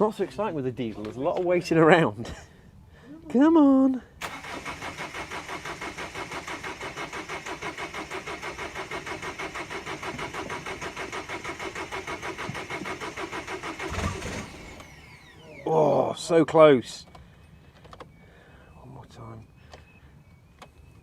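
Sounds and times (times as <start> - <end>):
starter motor cranking diesel engine: 4.2 - 15.6.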